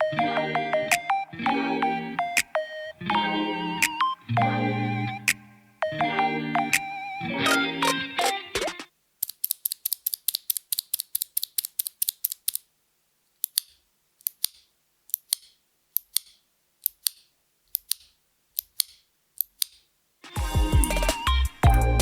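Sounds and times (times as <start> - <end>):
mechanical keyboard switches clicking: 9.2 - 12.6, 13.4 - 19.8.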